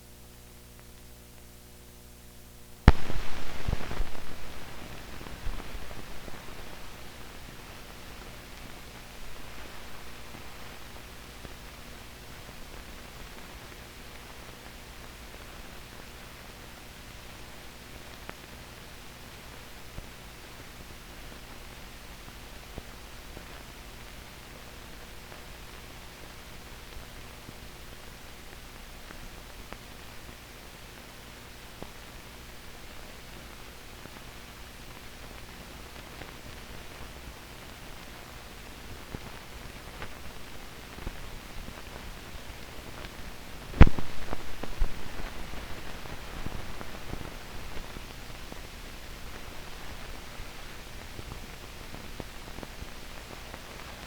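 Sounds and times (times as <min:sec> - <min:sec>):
old film soundtrack hiss: 0:00.0 - 0:54.0
film crackles: 0:02.8 - 0:11.8
sharp loud pop: 0:02.9 - 0:06.9, 0:43.8 - 0:45.6.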